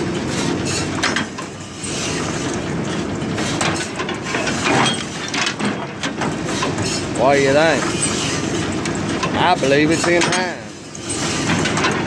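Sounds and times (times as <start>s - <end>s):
baler mechanism clattering: 7.7s - 12.0s.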